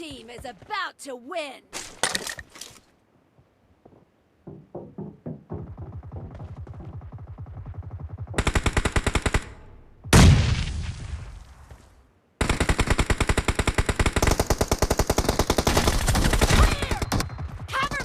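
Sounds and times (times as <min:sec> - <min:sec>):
rapid automatic gunfire: 0:05.9 - 0:09.5, 0:12.4 - 0:18.0.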